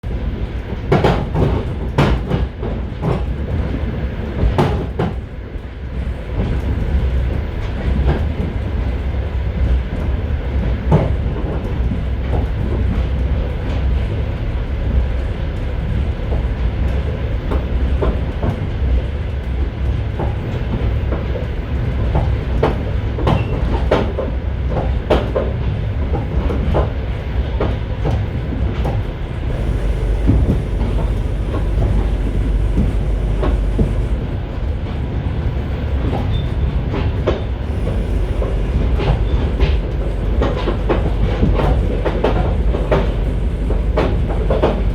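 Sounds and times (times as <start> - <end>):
train car low rumble: 0.0 - 44.9.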